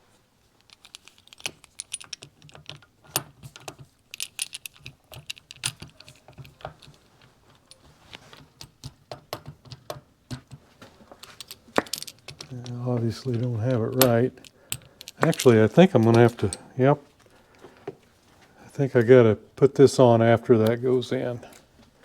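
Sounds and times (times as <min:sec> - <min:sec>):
small metal parts clinking: 0:00.6 - 0:16.8.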